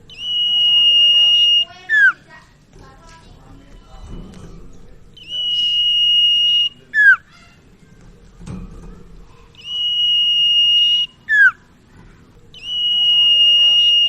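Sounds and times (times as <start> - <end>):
bird whistling: 0.0 - 2.3, 5.2 - 7.3, 9.6 - 11.6, 12.5 - 14.0.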